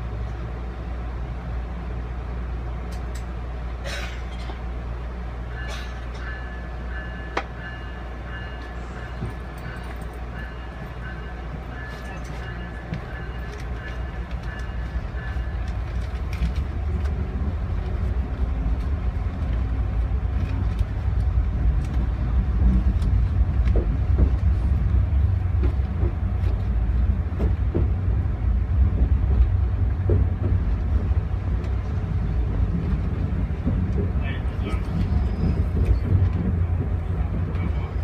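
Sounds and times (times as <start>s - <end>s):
train rumbling on rails: 0.0s - 38.0s
wheels knocking and clacking: 20.3s - 24.7s, 25.5s - 28.1s, 28.8s - 37.8s.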